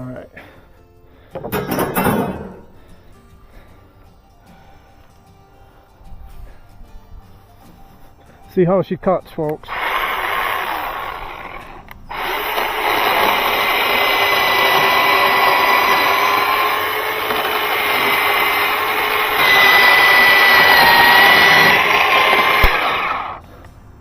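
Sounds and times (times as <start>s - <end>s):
electric chainsaw cutting wood: 9.6s - 23.4s.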